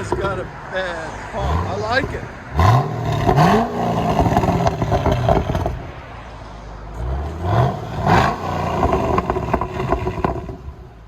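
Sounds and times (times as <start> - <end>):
car engine revving: 0.0 - 6.1, 6.9 - 11.0
exhaust crackling pops: 3.2 - 5.9, 8.2 - 10.7.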